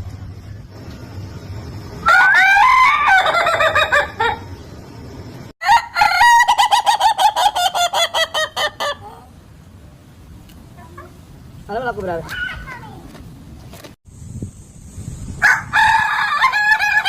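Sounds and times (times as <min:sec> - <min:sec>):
rooster crowing in laughing notes: 0:02.0 - 0:04.4, 0:15.4 - 0:17.0.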